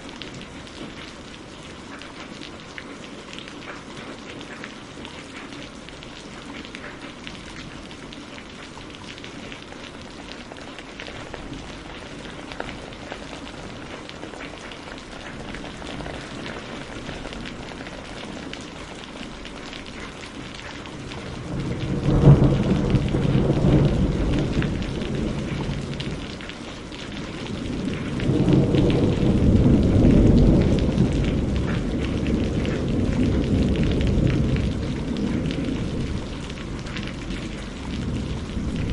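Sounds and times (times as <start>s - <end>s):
steady rain falling: 0.0s - 38.9s
thunder clap and rumble: 10.5s - 38.9s.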